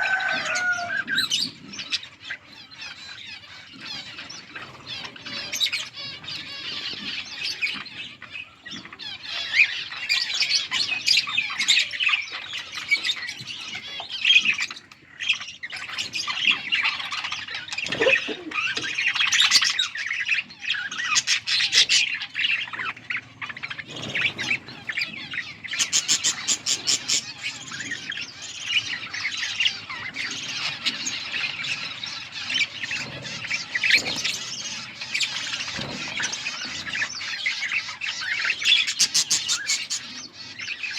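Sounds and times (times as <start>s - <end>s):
budgerigars chirping: 0.0s - 40.9s
harsh squawks: 17.0s - 19.8s.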